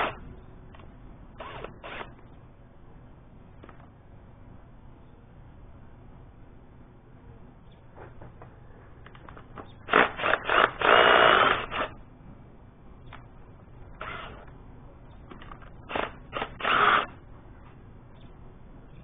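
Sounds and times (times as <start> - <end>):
power tool bursts: 1.4 - 2.2, 9.8 - 12.0, 15.9 - 17.2.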